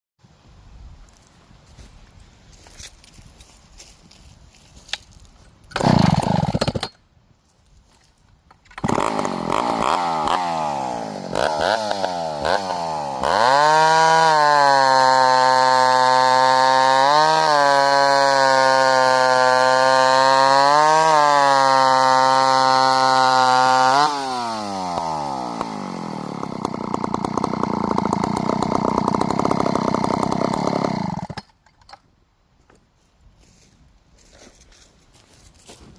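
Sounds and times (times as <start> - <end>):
chainsaw running: 5.7 - 7.0, 8.7 - 31.5.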